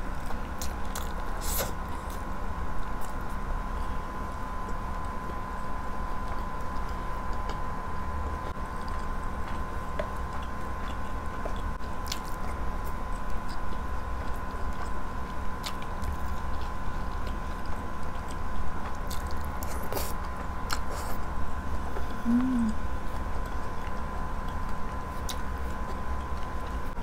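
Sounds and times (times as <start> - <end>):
electrical hum: 0.0 - 27.0
person chewing: 0.2 - 2.2, 8.7 - 15.0, 15.6 - 21.3.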